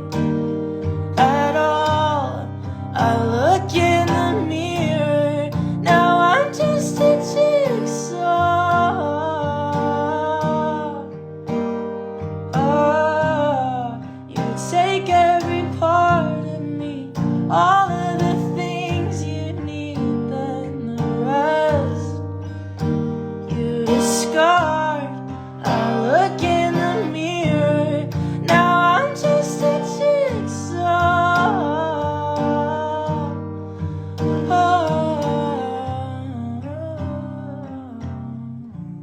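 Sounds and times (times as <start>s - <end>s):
acoustic guitar chords: 0.0s - 39.0s
person singing wordless long notes: 1.2s - 11.0s, 23.6s - 33.4s.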